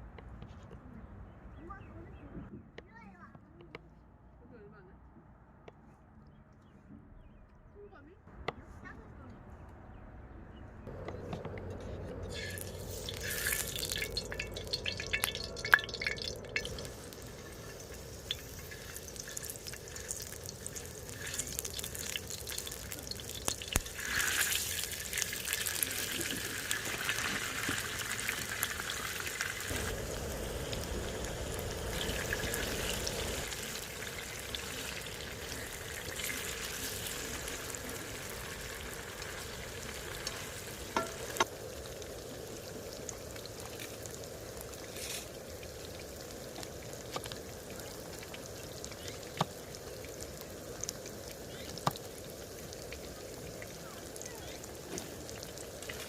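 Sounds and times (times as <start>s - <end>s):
food sizzling in a pan: 12.3s - 56.0s.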